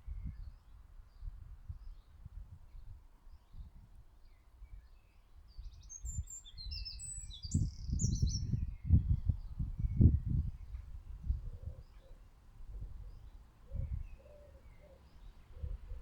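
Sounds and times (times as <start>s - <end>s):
small birds twittering: 4.2s - 12.3s, 13.0s - 16.0s.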